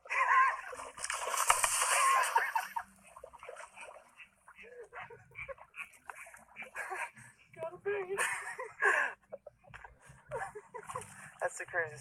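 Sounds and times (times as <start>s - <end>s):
fish thrashing and splashing water: 0.1s - 4.3s.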